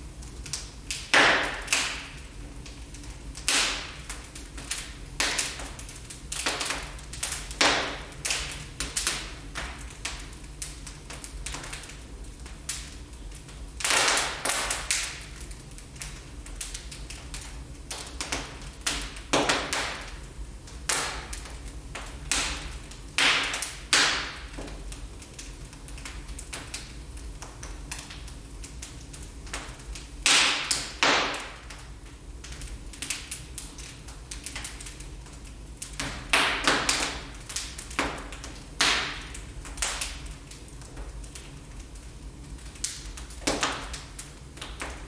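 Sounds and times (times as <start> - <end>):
wood fire crackling: 0.0 - 45.0
loud snapping pops: 3.4 - 4.2, 30.3 - 31.8.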